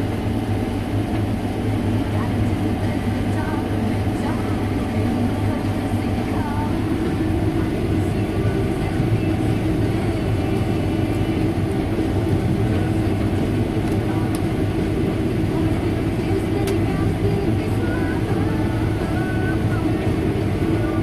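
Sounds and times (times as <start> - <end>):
harvest machinery engine droning: 0.0 - 21.0.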